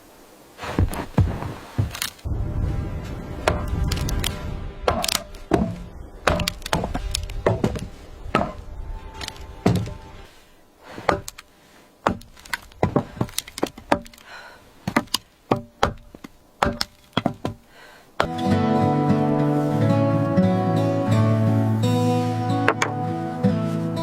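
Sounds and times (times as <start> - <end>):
wooden knocks and thuds: 4.9 - 8.7, 11.0 - 11.4, 12.0 - 14.2, 14.8 - 17.6, 22.6 - 23.0.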